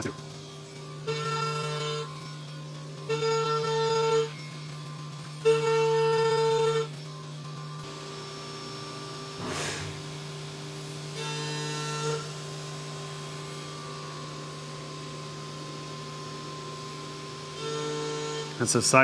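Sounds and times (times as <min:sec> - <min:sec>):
low electrical hum: 0:05.4 - 0:19.0.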